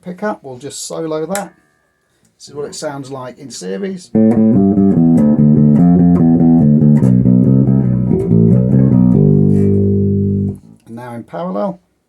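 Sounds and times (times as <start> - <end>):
electric bass plucked notes: 4.2 - 10.6.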